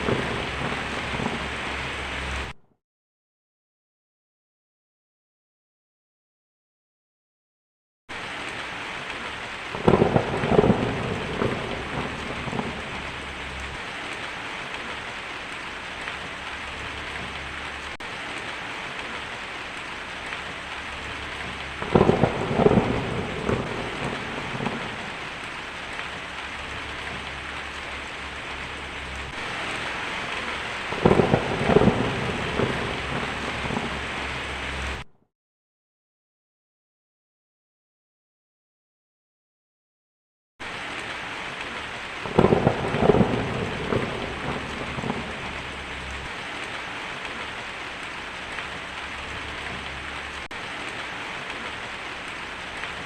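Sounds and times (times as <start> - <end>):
heavy rain hiss: 0.0 - 2.5, 8.2 - 35.0, 40.6 - 53.0
thunder cracking and rumbling: 0.0 - 2.6, 8.2 - 35.1, 40.6 - 53.0.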